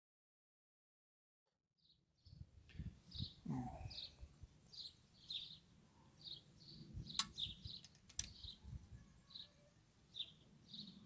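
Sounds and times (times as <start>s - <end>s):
small birds chirping: 1.8s - 11.0s
sharp clicks: 7.1s - 8.5s.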